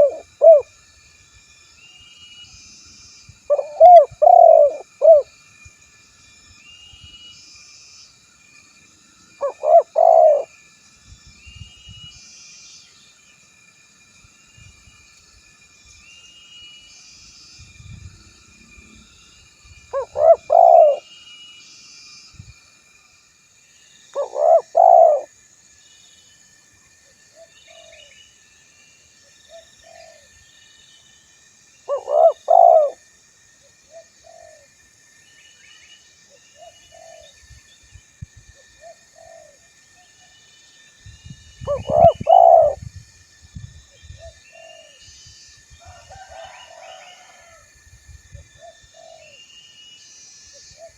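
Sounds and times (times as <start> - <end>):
dove cooing: 0.0 - 0.7, 3.5 - 5.3, 9.4 - 10.5, 19.9 - 21.0, 24.2 - 25.3, 29.8 - 30.3, 31.9 - 33.0, 33.9 - 34.7, 36.6 - 37.3, 38.8 - 39.6, 41.7 - 42.8, 44.2 - 45.0, 48.6 - 49.4
small birds chirping: 24.1 - 25.3, 31.9 - 33.0, 41.4 - 42.8.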